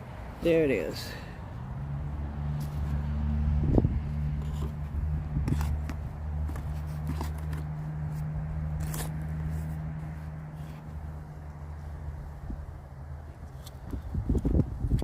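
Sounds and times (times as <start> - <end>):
hands scraping through soil: 4.3 - 9.9.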